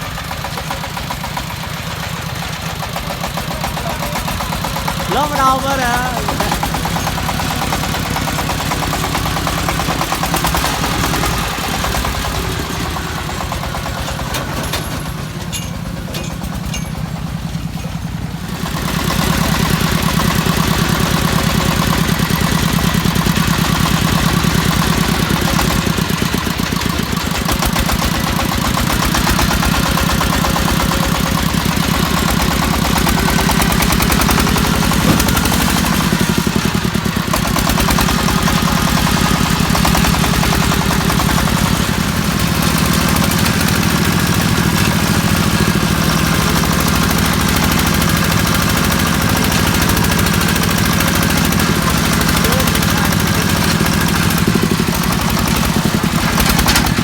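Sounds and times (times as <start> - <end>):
diesel truck engine chugging: 0.0 - 57.0.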